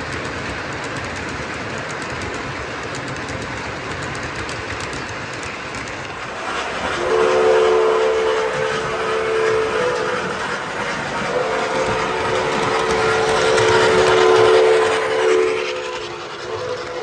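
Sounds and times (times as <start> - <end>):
model train rumble and clatter: 0.0 - 17.0
train horn chord: 7.0 - 10.4, 11.3 - 17.0.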